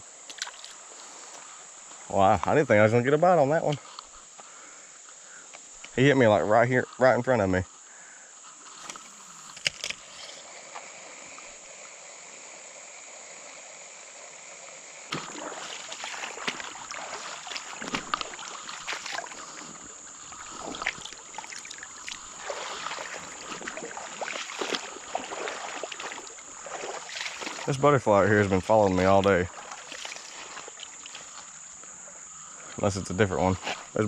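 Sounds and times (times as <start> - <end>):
high insect drone: 0.0 - 34.0
soft water hiss: 0.0 - 34.0
water splashing from wading: 15.1 - 31.6.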